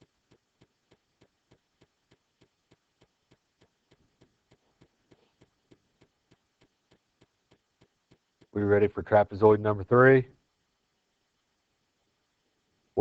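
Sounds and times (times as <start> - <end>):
faint even ticking: 0.0 - 8.6.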